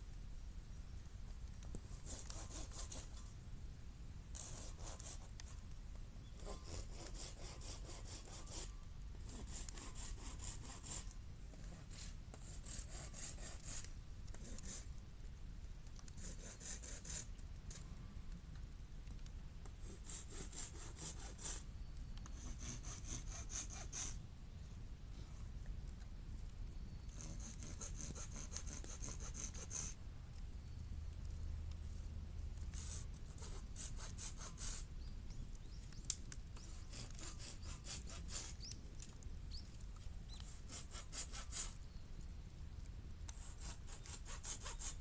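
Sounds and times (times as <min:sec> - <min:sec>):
hand saw cutting bamboo: 0:02.0 - 0:03.1, 0:06.4 - 0:08.7, 0:09.3 - 0:11.1, 0:12.0 - 0:13.8, 0:19.9 - 0:21.6, 0:22.4 - 0:24.2, 0:27.2 - 0:29.9, 0:36.7 - 0:38.6, 0:40.4 - 0:41.8, 0:43.3 - 0:45.0.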